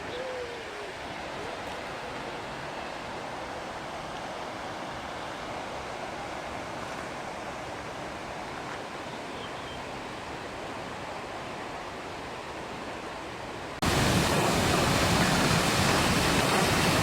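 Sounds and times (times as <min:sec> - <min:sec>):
waterfall rushing: 0:13.8 - 0:17.0.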